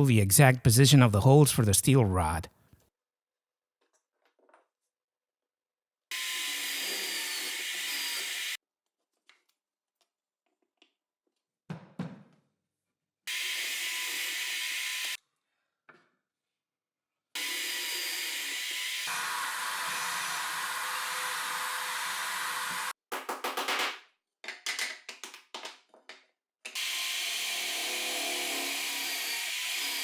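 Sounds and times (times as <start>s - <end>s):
electric drill drilling wood: 17.4s - 22.9s, 26.8s - 30.0s.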